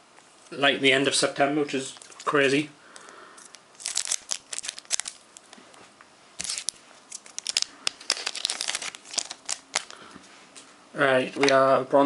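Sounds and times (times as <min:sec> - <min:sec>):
foil wrapper crinkling: 0:03.4 - 0:05.5, 0:06.4 - 0:10.0.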